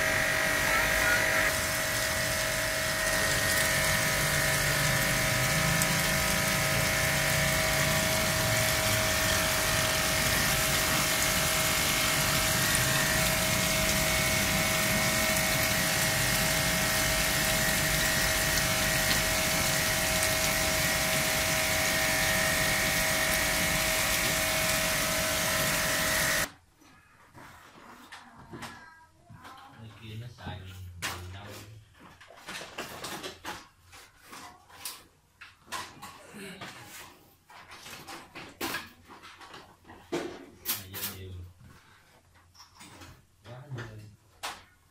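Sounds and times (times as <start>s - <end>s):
pressure washer motor humming: 0.0s - 26.5s
water pouring into plastic bucket: 1.5s - 26.5s.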